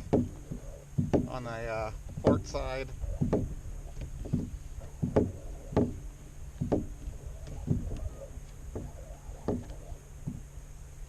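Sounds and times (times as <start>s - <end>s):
hollow knocks on plastic hull: 0.0s - 2.6s, 3.2s - 6.0s, 6.6s - 8.1s, 8.7s - 10.5s.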